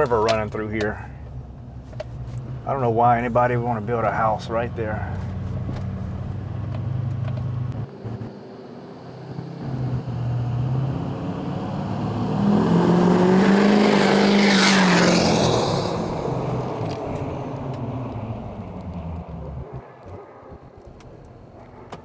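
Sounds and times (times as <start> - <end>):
diesel truck driving past: 5.0 - 20.7.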